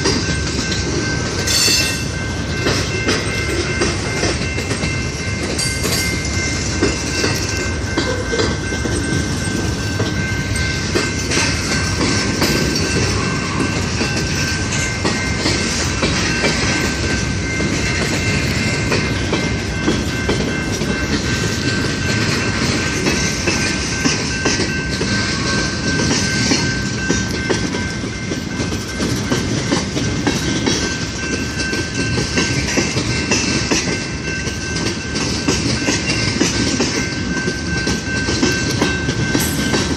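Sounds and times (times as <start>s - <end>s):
train wheels rumbling on rail: 0.0s - 39.9s
high-pitched ring: 0.3s - 23.0s.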